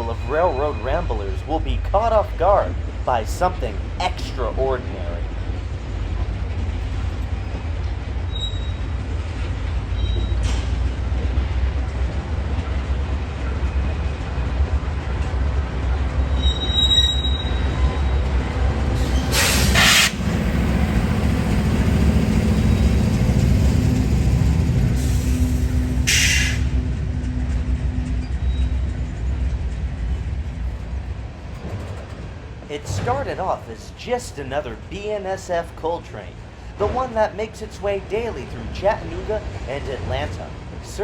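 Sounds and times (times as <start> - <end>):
low train drone: 0.0 - 41.0
train wheels rumbling on rail: 0.0 - 41.0
high wheel squeals: 8.2 - 9.0, 9.9 - 10.8, 16.2 - 18.4, 19.0 - 20.5, 24.9 - 26.8, 28.0 - 29.4.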